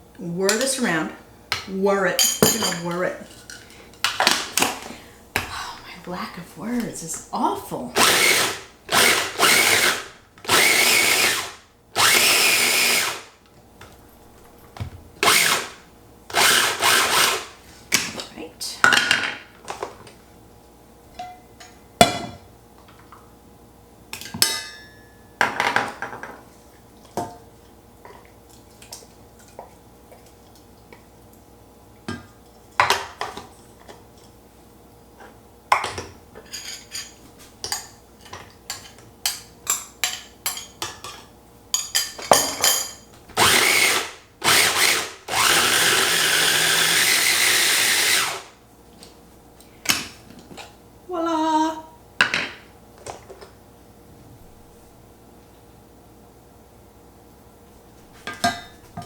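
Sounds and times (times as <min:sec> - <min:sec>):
food processor chopping: 0:08.0 - 0:13.3, 0:15.2 - 0:17.6, 0:43.4 - 0:48.5.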